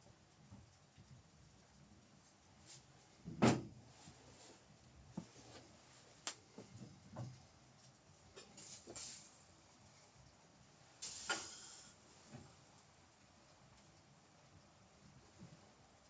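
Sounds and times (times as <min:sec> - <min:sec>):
thump: 0:03.3 - 0:03.7.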